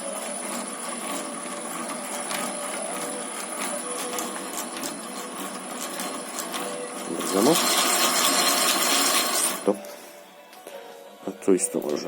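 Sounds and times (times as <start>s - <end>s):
lathe gears clattering: 0.0s - 9.8s.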